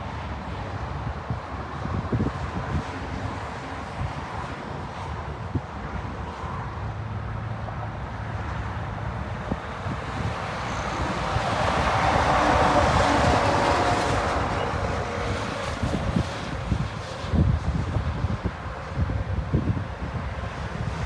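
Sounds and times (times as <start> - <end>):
wind rumble on microphone: 0.0 - 21.0
jet airliner passing: 7.6 - 21.0.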